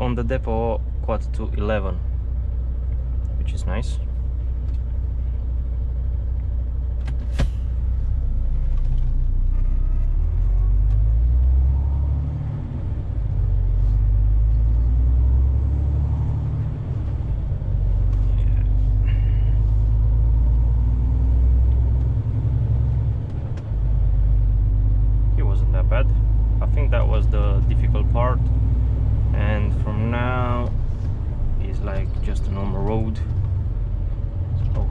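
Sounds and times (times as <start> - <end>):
lorry diesel engine droning: 0.0 - 34.9.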